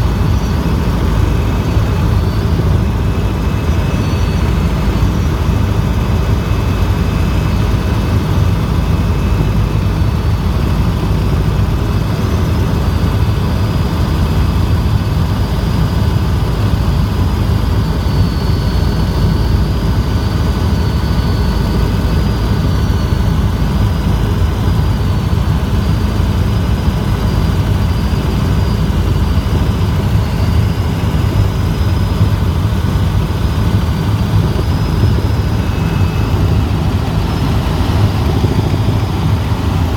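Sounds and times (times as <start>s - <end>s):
helicopter engine and rotor: 0.0s - 39.9s
high thin whines: 32.4s - 39.9s.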